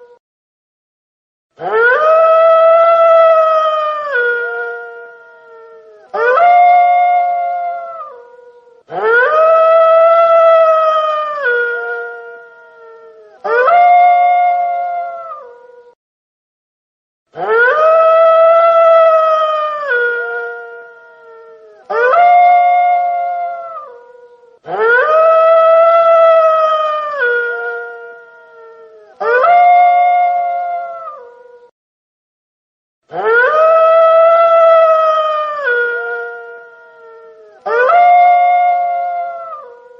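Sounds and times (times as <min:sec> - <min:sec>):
wolf howling: 0:01.6 - 0:16.0, 0:17.4 - 0:31.7, 0:33.1 - 0:39.9.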